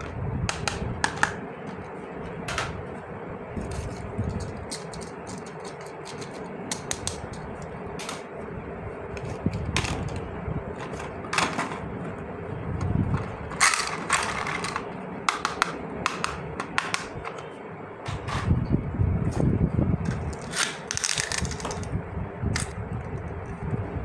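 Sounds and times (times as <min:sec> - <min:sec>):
faint steady hum: 0:00.0 - 0:24.0
plastic toy parts clicking: 0:03.7 - 0:07.4, 0:13.5 - 0:17.0, 0:20.3 - 0:21.9.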